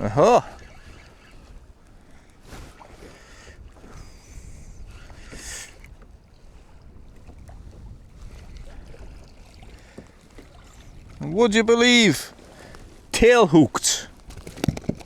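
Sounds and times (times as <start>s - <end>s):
wind buffeting microphone: 0.0s - 13.1s
water sloshing against a kayak: 0.0s - 15.0s
water splashes: 5.0s - 15.0s.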